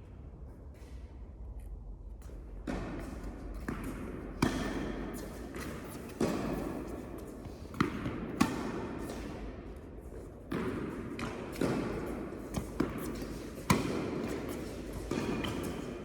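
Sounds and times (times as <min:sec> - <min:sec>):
tennis ball bouncing on court: 0:02.6 - 0:09.8, 0:10.4 - 0:16.0
tennis ball struck by rackets: 0:02.7 - 0:09.5, 0:10.5 - 0:16.0.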